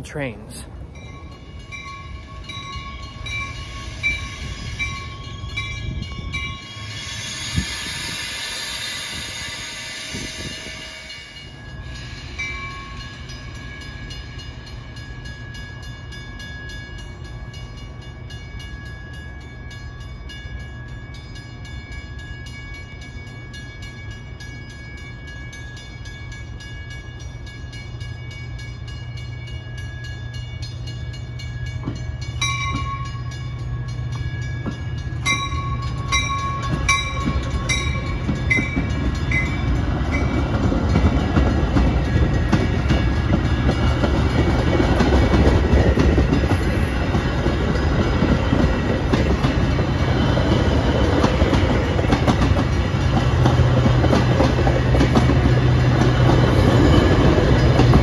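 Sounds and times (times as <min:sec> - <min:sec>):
high ringing tones: 0:00.0 - 0:44.0
train rumbling past: 0:00.0 - 0:58.0.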